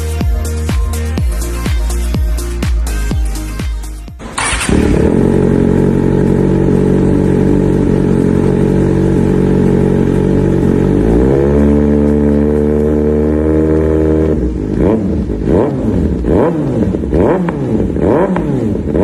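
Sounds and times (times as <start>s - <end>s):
electronic music: 0.0s - 4.4s
motorcycle engine revving: 4.2s - 19.0s.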